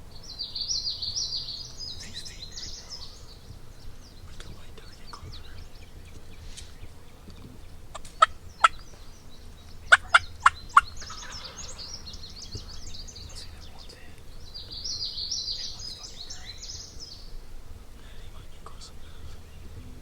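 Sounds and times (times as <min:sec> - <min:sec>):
turkey clucks and cutts: 0:03.9 - 0:14.3.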